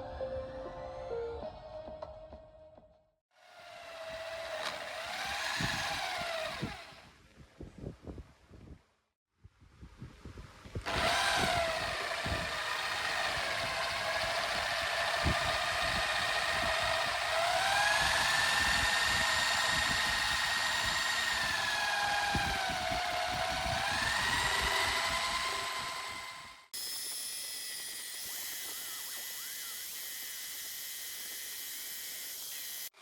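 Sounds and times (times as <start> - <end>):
power tool motor whining: 3.4 - 7.1, 10.8 - 33.0
scratchy crackle of cutting: 26.8 - 32.9.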